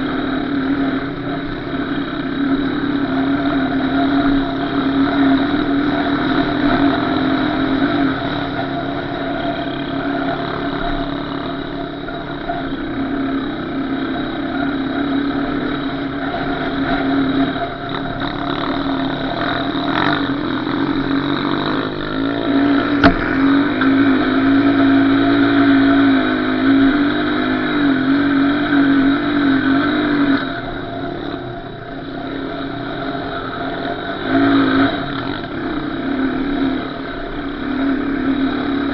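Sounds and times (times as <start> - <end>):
small off-road engine revving: 0.0 - 38.9
sharp knock: 23.0 - 23.4.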